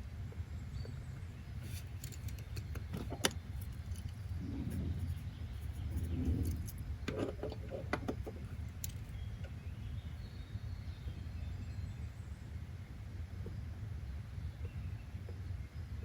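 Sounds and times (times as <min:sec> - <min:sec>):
low ambient rumble: 0:00.0 - 0:16.0
light clicks and knocks: 0:01.7 - 0:09.6.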